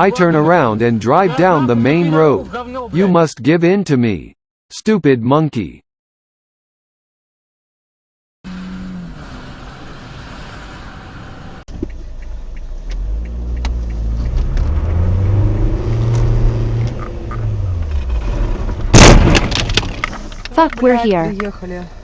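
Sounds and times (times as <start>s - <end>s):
car engine and road noise: 0.0s - 3.1s, 8.5s - 22.0s
car collision crash: 18.4s - 20.4s.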